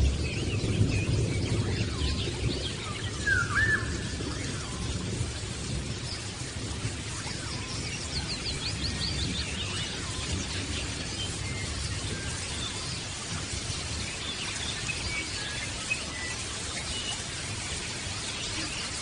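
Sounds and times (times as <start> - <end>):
steady low rumble: 0.0 - 9.7
small birds chirping: 0.0 - 19.0.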